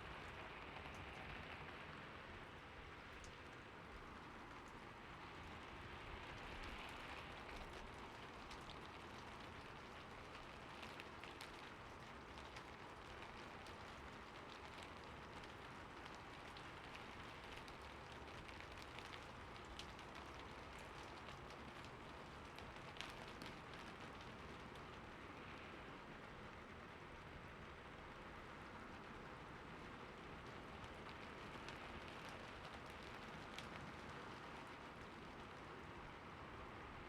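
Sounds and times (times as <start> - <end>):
raindrop ticks: 0.0 - 36.9
soft rain hiss: 0.0 - 37.0.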